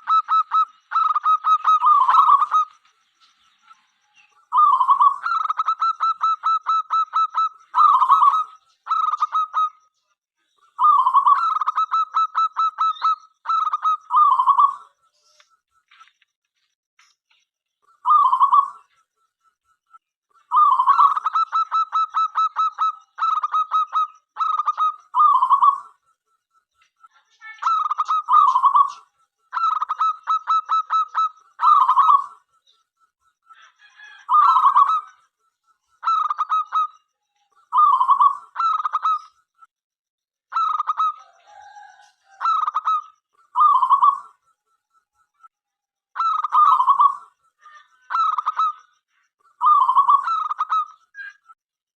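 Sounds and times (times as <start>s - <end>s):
dove cooing: 0.0s - 2.7s, 18.0s - 18.8s, 20.5s - 25.9s, 27.8s - 32.4s, 33.6s - 35.1s, 40.6s - 44.3s, 46.2s - 47.3s.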